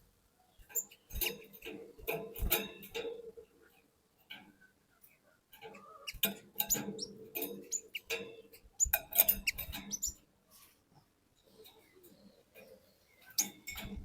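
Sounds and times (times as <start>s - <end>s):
bird chirping and chattering: 4.6s - 10.2s, 11.4s - 14.0s.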